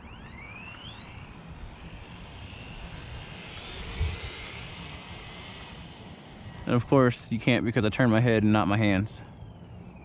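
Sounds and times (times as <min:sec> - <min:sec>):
electric motor whining: 0:00.0 - 0:06.4.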